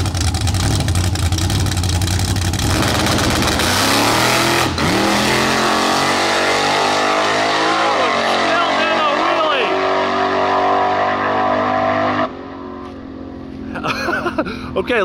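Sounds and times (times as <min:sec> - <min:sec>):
car engine crackling: 0:00.0 - 0:15.0
car accelerating away: 0:02.5 - 0:13.8.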